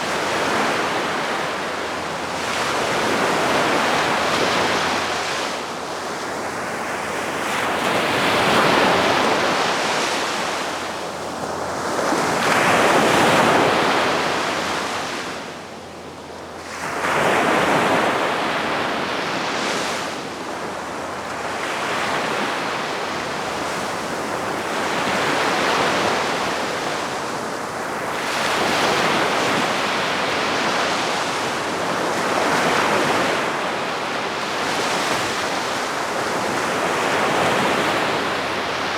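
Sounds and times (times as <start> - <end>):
sea waves washing ashore: 16.6 - 38.9.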